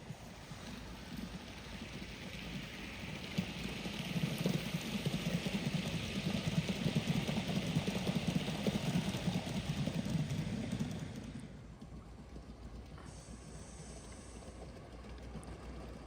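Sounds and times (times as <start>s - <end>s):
model steam locomotive running: 0.0s - 16.0s
steam hissing: 13.0s - 14.7s.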